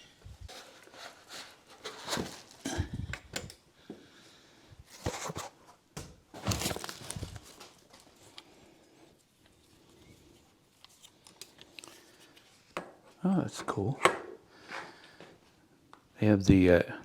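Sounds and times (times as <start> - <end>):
packing material rustling and tearing: 6.3 - 8.4.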